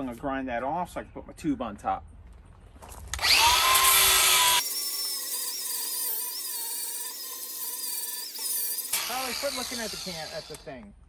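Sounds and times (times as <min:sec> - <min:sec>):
angle grinder grinding steel: 0:03.2 - 0:10.7.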